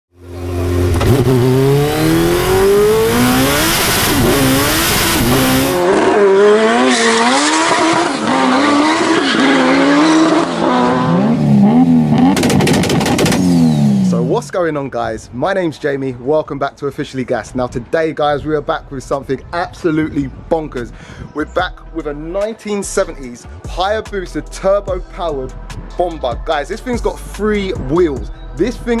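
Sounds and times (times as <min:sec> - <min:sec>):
engine revving: 0:00.2 - 0:14.4
sharp exhaust pops: 0:12.1 - 0:13.7.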